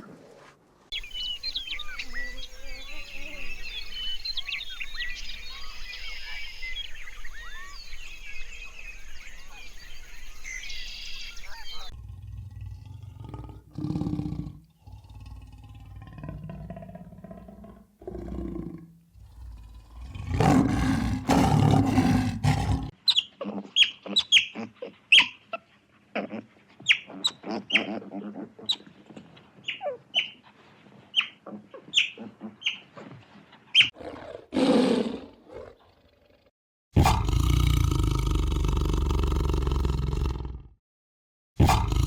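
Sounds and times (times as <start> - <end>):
animal growling: 11.9 - 23.0, 34.0 - 40.8, 41.6 - 42.0
animal squeaking calls: 22.4 - 25.6, 26.2 - 28.9.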